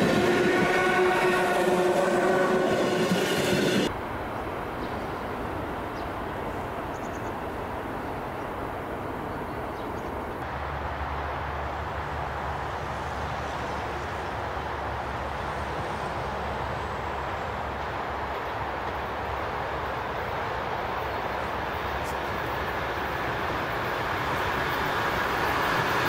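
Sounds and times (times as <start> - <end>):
train horn: 0.0 - 3.9
train rumbling on rails: 0.0 - 26.0.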